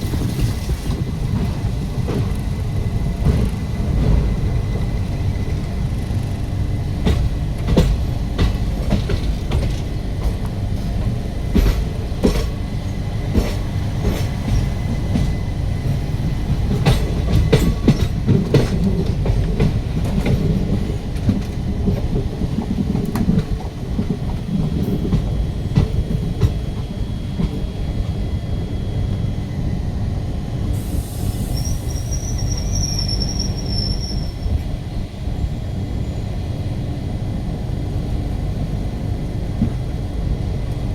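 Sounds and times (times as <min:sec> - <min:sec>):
train rumbling on rails: 0:00.0 - 0:40.9
faint high wheel squeal: 0:30.8 - 0:34.8.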